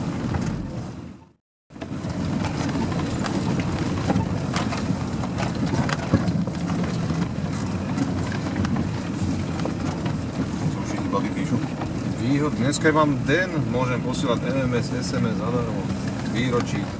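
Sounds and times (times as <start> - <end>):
vehicle engine running: 0.0 - 16.9.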